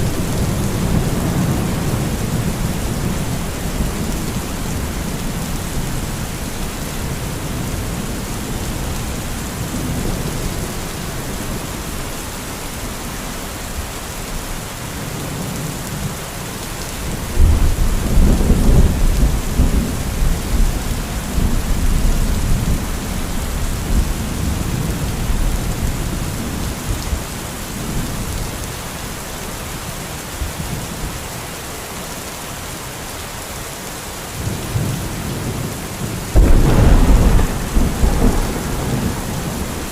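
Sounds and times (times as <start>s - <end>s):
heavy rain: 0.0s - 39.9s
rolling thunder: 36.3s - 39.9s.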